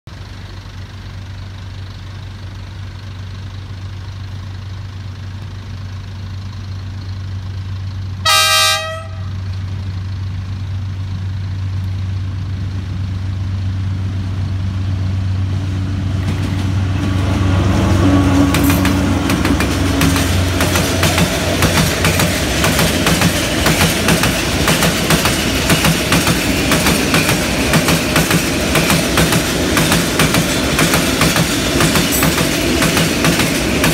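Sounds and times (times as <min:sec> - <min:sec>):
locomotive engine hum: 0:00.1 - 0:33.9
locomotive horn blast: 0:08.2 - 0:09.5.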